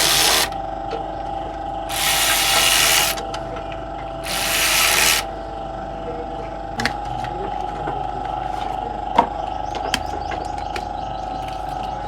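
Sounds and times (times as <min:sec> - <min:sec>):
steady background hum: 0:00.0 - 0:12.0
ratchet wrench clicking: 0:01.9 - 0:03.2, 0:04.3 - 0:05.3.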